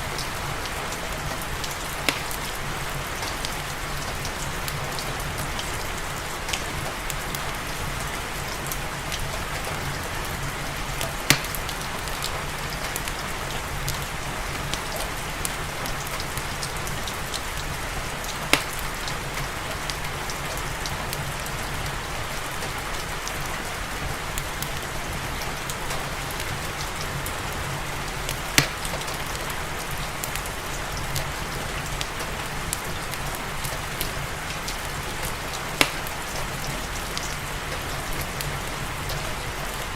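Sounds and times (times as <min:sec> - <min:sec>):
steady rain falling: 0:00.0 - 0:39.9
wood fire crackling and popping: 0:00.1 - 0:05.7, 0:10.6 - 0:14.0, 0:14.6 - 0:20.0, 0:28.3 - 0:30.5, 0:32.0 - 0:38.4.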